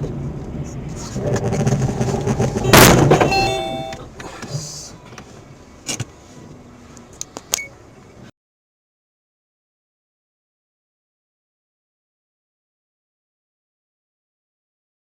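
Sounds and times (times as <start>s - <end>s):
loud crash impact: 1.8s - 4.0s
brief ringing tones: 2.6s - 4.1s.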